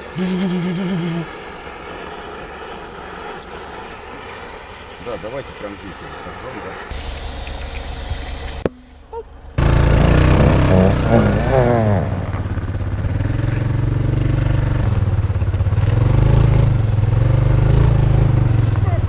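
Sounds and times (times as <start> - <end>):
wavering pitched sound: 0.0 - 12.6
off-road vehicle engine running: 0.0 - 19.0.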